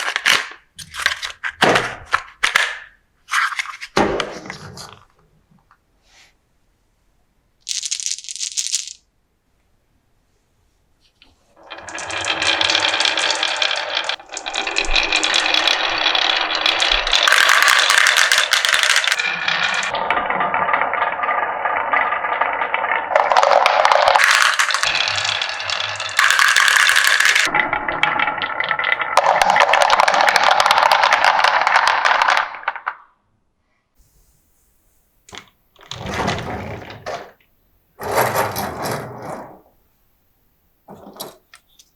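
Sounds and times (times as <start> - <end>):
marbles rolling down a marble run: 7.7 - 9.0, 11.6 - 33.1.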